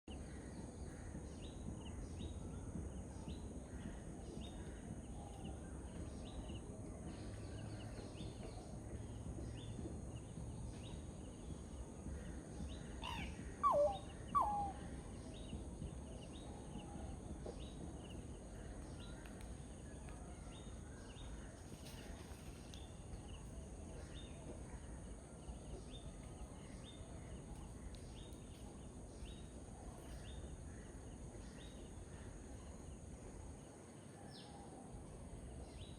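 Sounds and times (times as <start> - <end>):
bird calls sweeping in pitch: 13.0 - 14.8.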